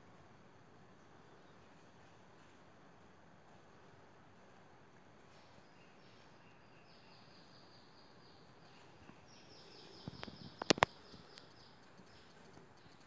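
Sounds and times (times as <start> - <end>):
sharp clicks: 10.0 - 13.0.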